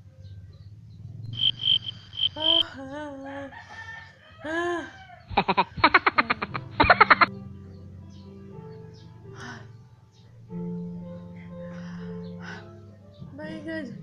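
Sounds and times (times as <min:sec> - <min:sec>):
high pips: 0:01.3 - 0:02.6, 0:05.3 - 0:07.3
rooster crowing: 0:01.4 - 0:07.3.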